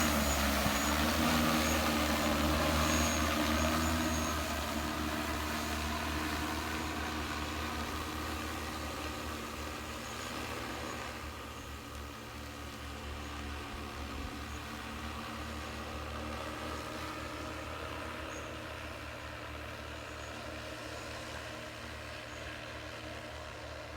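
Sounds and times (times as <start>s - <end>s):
drone rotors humming: 0.0s - 12.9s.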